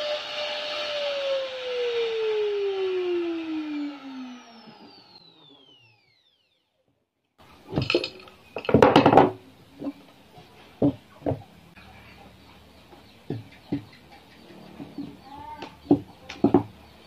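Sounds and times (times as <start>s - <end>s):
power tool winding down: 0.0s - 6.8s
wood and tools knocking: 7.7s - 11.5s, 13.2s - 14.0s, 14.8s - 16.8s.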